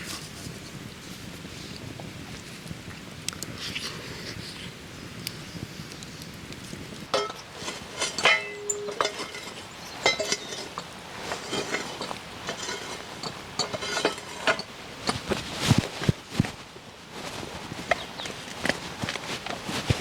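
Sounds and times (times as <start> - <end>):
utensils clinking on cookware: 7.1 - 15.3.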